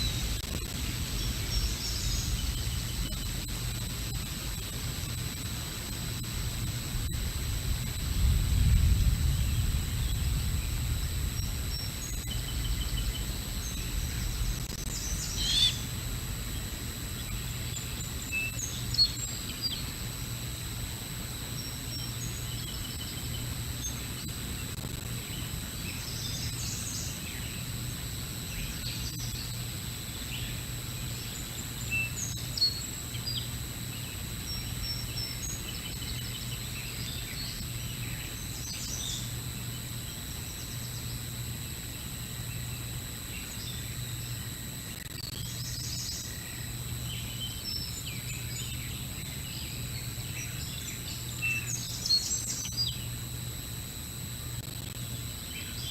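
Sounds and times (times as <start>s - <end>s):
small birds chirping: 0.0s - 8.2s, 9.0s - 20.1s
high electronic whine: 0.0s - 55.9s
steady low hum: 0.0s - 55.9s.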